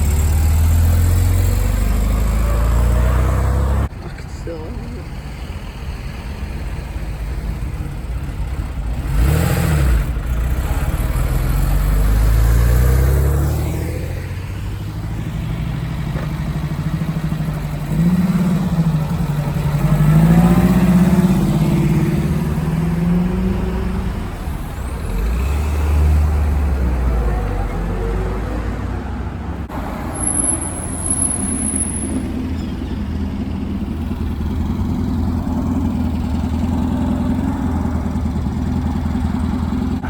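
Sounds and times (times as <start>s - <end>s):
cars accelerating past: 0.0s - 3.9s, 8.9s - 40.0s
engine revving: 0.0s - 3.9s, 8.6s - 30.1s
engine shifting through gears: 0.0s - 40.0s.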